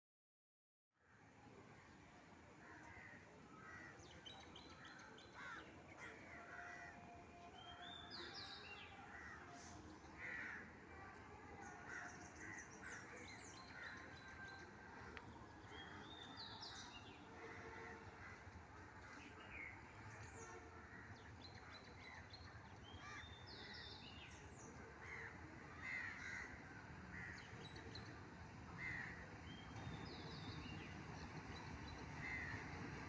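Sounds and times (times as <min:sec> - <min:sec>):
crow-like caws: 0:25.0 - 0:27.4.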